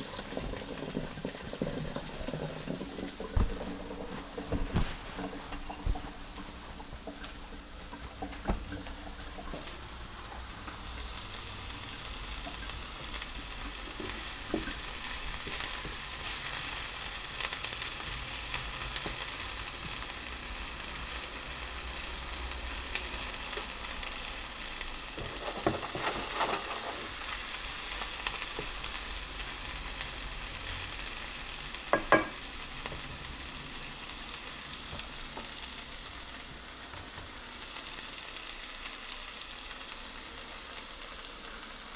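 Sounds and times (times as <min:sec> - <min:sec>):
food sizzling in a pan: 0:08.9 - 0:41.9.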